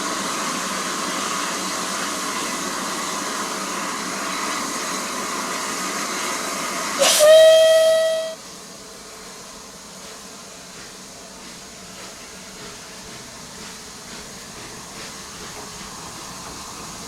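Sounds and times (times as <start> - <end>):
steam locomotive hissing: 0.0 - 17.0
steam whistle blast: 7.0 - 8.4.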